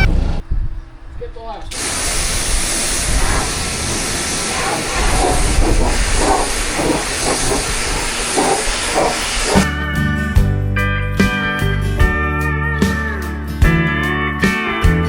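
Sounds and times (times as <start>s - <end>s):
pressure washer spraying: 1.7s - 9.7s.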